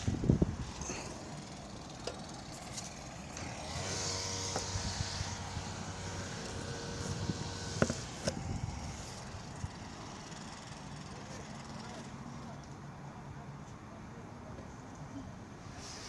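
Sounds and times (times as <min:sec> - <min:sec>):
motor humming: 0:00.0 - 0:11.8.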